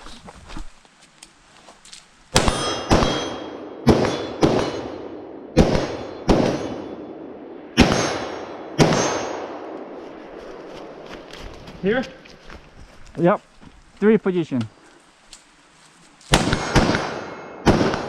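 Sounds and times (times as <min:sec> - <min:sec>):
gunshots with ringing decay: 0:02.3 - 0:10.0, 0:16.3 - 0:18.0
bullets clanging on steel targets: 0:02.4 - 0:05.1.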